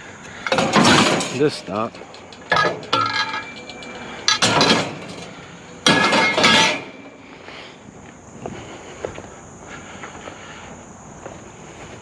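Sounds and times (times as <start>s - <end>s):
scrap metal clattering and clanging: 0.3s - 7.4s.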